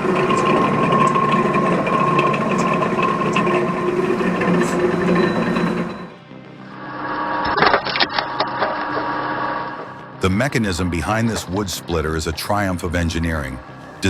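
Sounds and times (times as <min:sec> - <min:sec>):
faint mechanical ticking: 0:00.0 - 0:06.1
wood chipper motor humming: 0:00.0 - 0:12.3.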